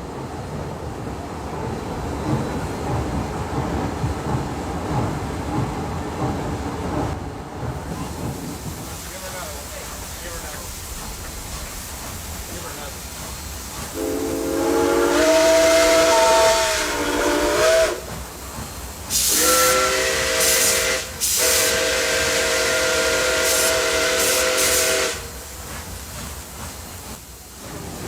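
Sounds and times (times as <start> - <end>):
steam hiss: 7.8 - 28.0
steam locomotive whistle: 13.9 - 18.2, 19.1 - 25.4.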